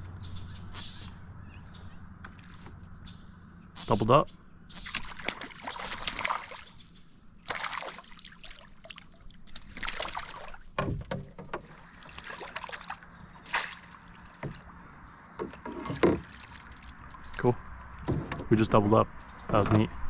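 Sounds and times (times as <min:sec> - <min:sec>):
water splashing and sloshing: 0:02.2 - 0:04.0, 0:04.7 - 0:20.0
dull thud: 0:10.7 - 0:11.7, 0:18.0 - 0:18.9.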